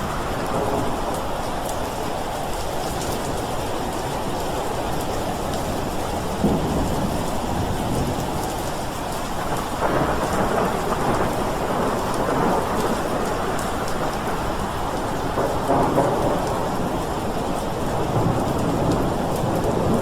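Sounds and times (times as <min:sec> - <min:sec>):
steady rain: 0:00.0 - 0:20.0
rumbling thunder: 0:09.3 - 0:20.0.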